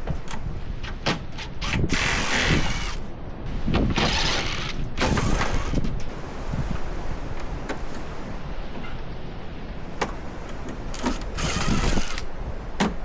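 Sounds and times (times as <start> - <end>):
wind rumble on microphone: 0.0 - 13.0
ratchet spanner clicking: 0.8 - 3.0, 11.0 - 12.3.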